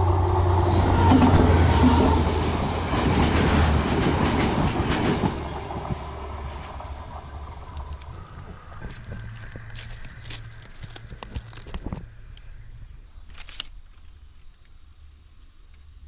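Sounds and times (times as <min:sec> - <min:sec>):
train wheels clattering over rails: 0:00.9 - 0:12.7.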